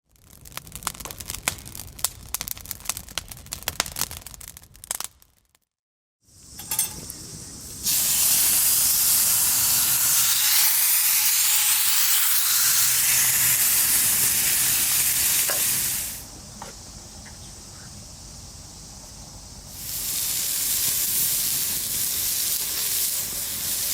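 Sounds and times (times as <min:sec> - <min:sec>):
steak sizzling in a frying pan: 0:07.6 - 0:16.2, 0:19.7 - 0:23.9.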